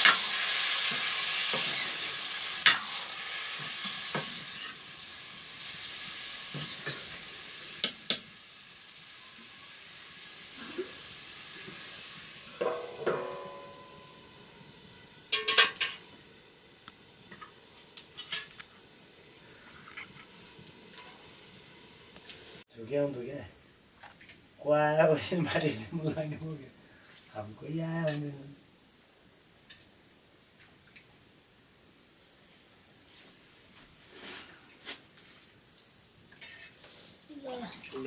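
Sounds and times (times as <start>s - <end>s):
metal spoon scraping wok: 0.0s - 3.0s, 3.6s - 4.9s, 18.1s - 18.6s
metal pots and utensils clanking: 0.0s - 4.9s, 6.5s - 7.2s, 12.4s - 14.4s, 15.3s - 16.2s, 17.3s - 18.6s, 20.9s - 21.3s, 36.3s - 36.8s
vegetables sizzling in a wok: 0.0s - 30.4s, 32.2s - 35.2s, 36.0s - 38.0s.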